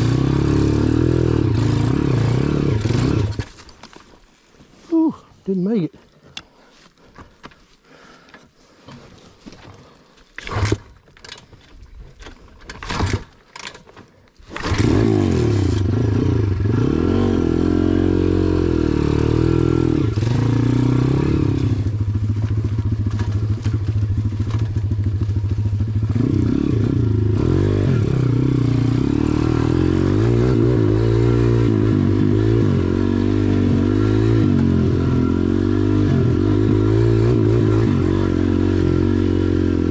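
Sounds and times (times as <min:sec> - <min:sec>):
dirt bike engine revving: 0:00.0 - 0:03.5, 0:14.5 - 0:39.9.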